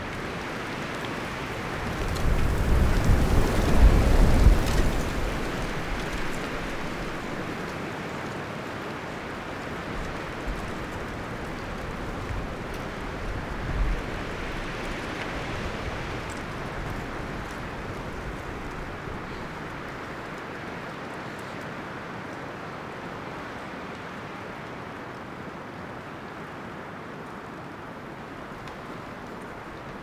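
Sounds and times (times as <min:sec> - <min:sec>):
deep rumble of wind gust: 0:00.0 - 0:07.7, 0:09.4 - 0:20.3
wind rustling leaves and branches: 0:00.0 - 0:30.0.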